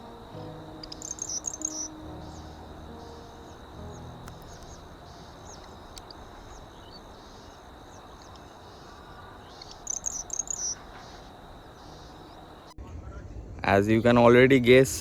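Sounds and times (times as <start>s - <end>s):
steady high tone: 0.0s - 8.0s
sharp high bird calls: 0.0s - 12.7s
insects chirping: 0.0s - 12.8s.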